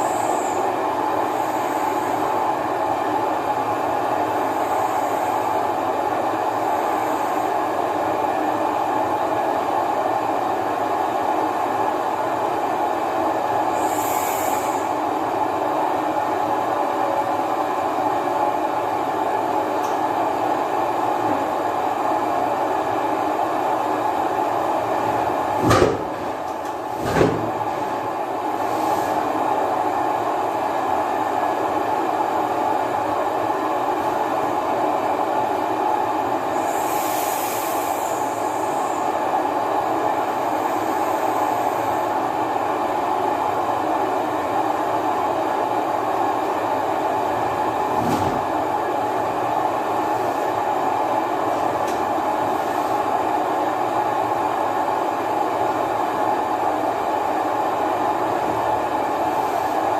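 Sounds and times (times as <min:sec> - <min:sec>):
loud engine knocks: 0:25.6 - 0:28.0.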